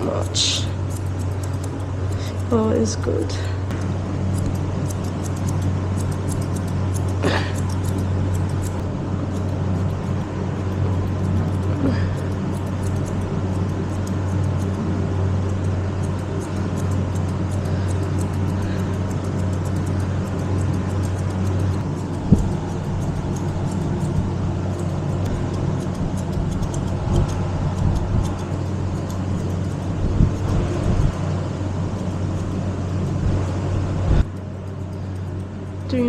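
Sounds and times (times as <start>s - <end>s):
electric clippers humming: 3.7s - 31.2s.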